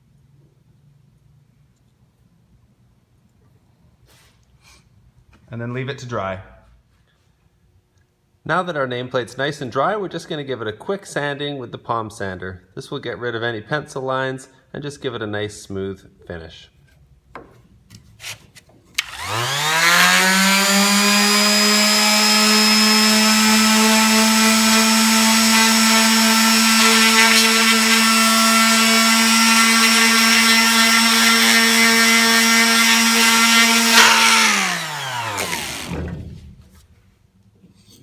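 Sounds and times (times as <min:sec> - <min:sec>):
electric palm sander running: 0:19.0 - 0:36.1.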